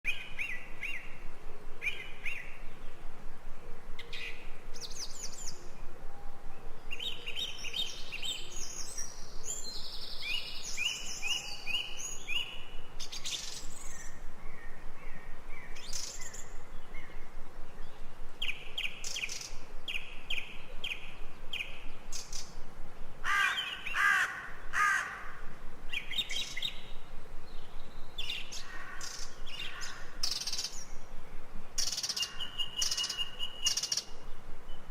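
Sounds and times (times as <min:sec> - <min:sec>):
birds chirping and whistling: 0:06.8 - 0:17.2, 0:31.8 - 0:34.1.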